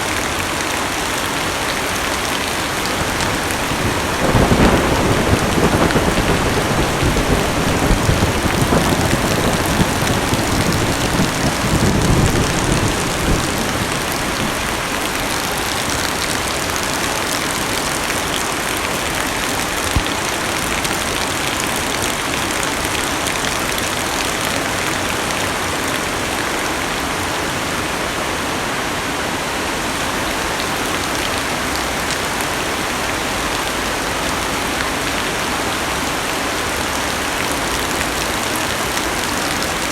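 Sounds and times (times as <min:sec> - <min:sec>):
heavy rain on car roof: 0:00.1 - 0:26.4, 0:30.6 - 0:39.9
thunder rumble: 0:02.7 - 0:16.0.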